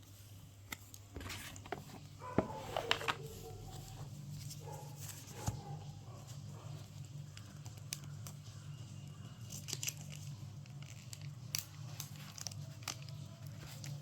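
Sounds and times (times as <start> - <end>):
packaging crinkling and tearing: 9.4 - 14.0.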